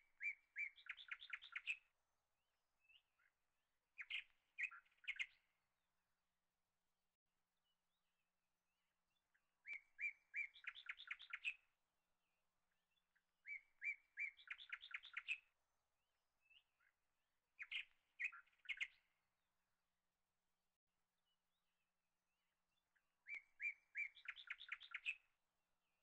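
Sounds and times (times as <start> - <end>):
songbird chirping and trilling: 0.0 - 2.0, 4.0 - 5.6, 9.1 - 15.6, 16.4 - 19.2, 22.7 - 25.4.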